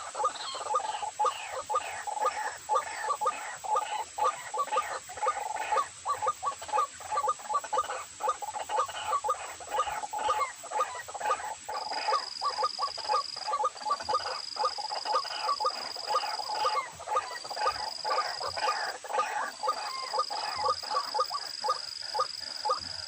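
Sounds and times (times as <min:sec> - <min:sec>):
waterhens calling: 0:00.0 - 0:23.0.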